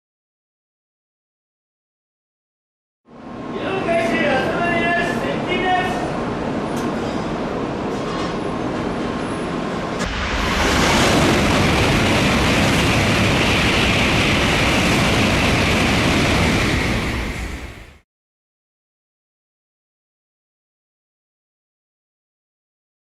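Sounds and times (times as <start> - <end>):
train passing at high speed: 3.1 - 18.0.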